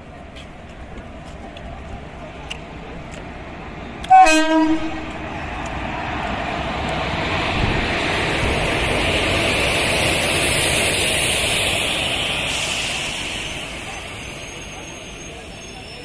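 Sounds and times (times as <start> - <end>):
train coaches rumbling on rails: 0.0 - 16.0
locomotive horn blast: 4.0 - 5.2.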